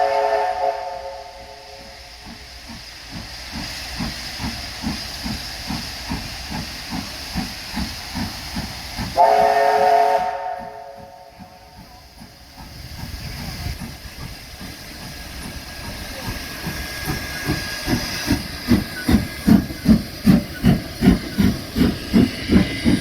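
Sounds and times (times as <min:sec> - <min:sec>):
steam whistle blast: 0:00.0 - 0:02.1, 0:09.2 - 0:11.5
steam hiss: 0:00.0 - 0:23.0
steam locomotive exhaust beats: 0:00.0 - 0:23.0.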